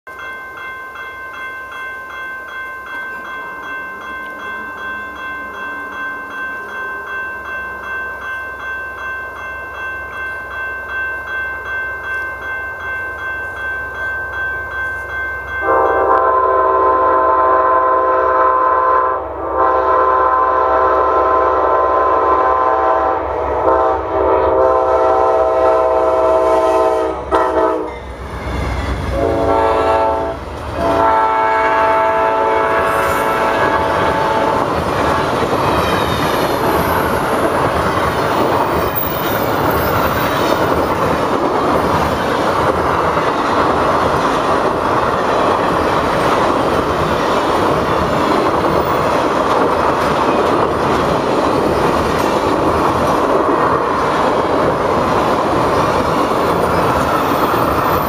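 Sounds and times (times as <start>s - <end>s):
train wheels rumbling on rail: 12.1s - 58.0s
locomotive horn blasts: 15.6s - 28.0s, 29.0s - 34.7s.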